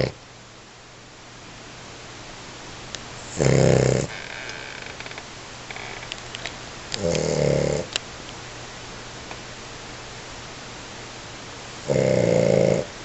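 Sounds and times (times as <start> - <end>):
puppy snoring: 3.2 - 4.2, 7.0 - 8.0, 11.8 - 12.9.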